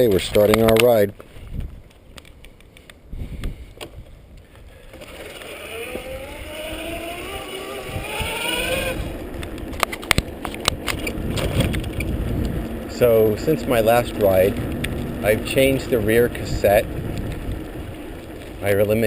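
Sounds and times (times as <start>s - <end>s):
low rumble of riding noise: 2.9s - 19.0s
electric bike motor whining: 4.7s - 19.0s.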